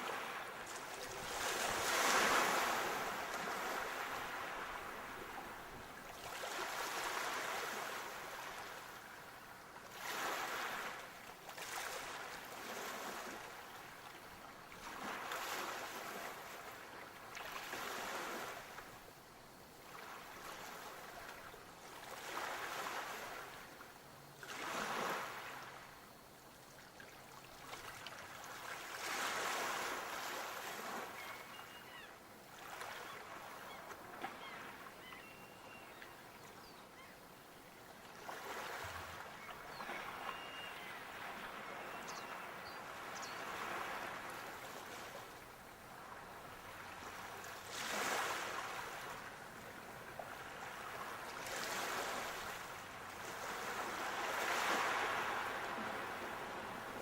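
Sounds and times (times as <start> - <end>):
sea waves breaking: 0.0 - 8.7, 38.1 - 57.0.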